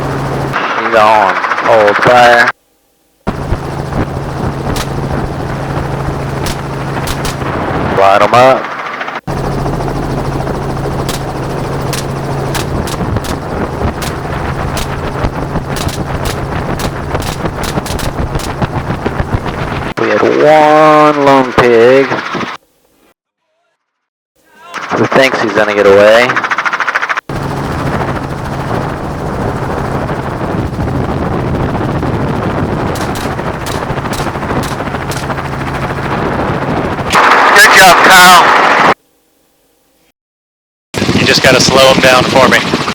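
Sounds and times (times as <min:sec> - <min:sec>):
helicopter rotor and engine drone: 0:00.0 - 0:02.6, 0:03.2 - 0:22.6, 0:24.6 - 0:39.0, 0:41.0 - 0:42.9
rapid gunshots: 0:00.5 - 0:02.5, 0:03.3 - 0:09.3, 0:11.0 - 0:20.0, 0:24.8 - 0:27.3, 0:32.6 - 0:36.2, 0:41.0 - 0:42.9
rifle shots: 0:04.7 - 0:05.2, 0:06.4 - 0:07.6, 0:11.0 - 0:18.8, 0:32.9 - 0:35.4.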